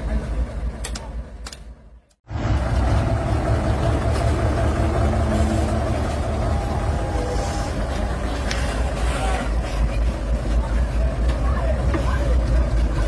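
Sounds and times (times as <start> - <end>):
vehicle engine running: 2.3 - 13.0.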